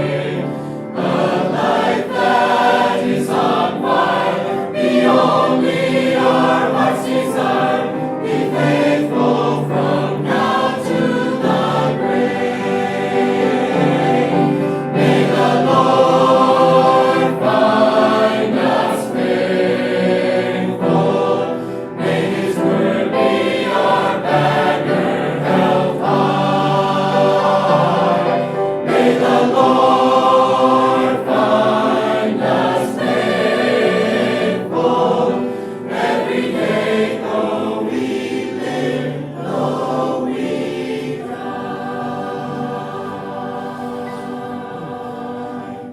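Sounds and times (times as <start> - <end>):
choir singing gospel: 0.0 - 45.9.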